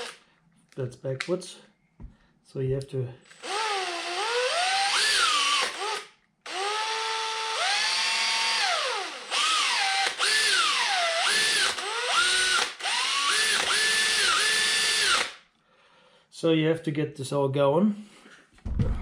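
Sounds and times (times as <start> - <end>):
electric drill motor whining: 3.3 - 15.4.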